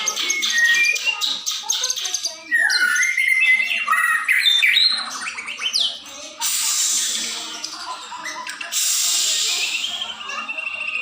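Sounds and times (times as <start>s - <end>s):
songbird chirping and whistling: 0.0s - 6.0s, 8.4s - 11.0s
loud harsh hissing: 6.4s - 7.6s, 8.7s - 9.8s.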